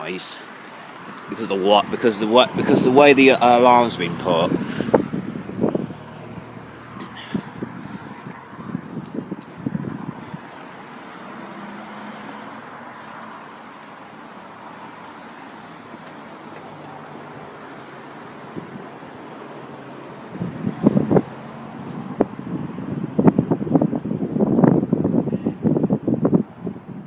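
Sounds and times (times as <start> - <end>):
road traffic noise: 0.0 - 27.0
wind buffeting microphone: 1.0 - 11.4, 17.8 - 27.0.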